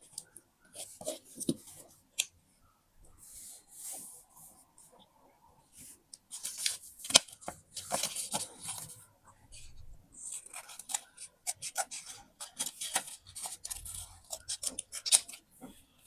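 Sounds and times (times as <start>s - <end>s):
paper crinkling: 6.3s - 9.0s, 10.2s - 15.4s
paper rustling: 6.3s - 9.0s, 9.6s - 15.8s
scissors snipping paper: 10.4s - 15.4s.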